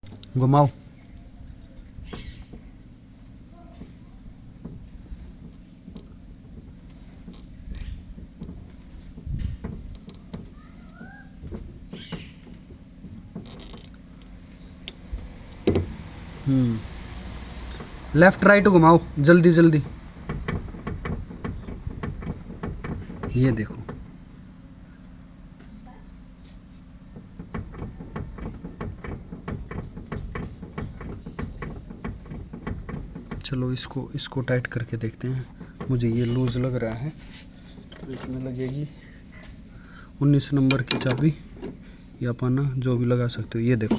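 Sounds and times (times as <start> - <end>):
loose car part clunking: 0.0 - 25.2, 26.8 - 43.9
vehicle engine idling: 0.0 - 43.9
knocks and clicks: 11.4 - 24.1, 27.2 - 36.9, 40.5 - 41.8.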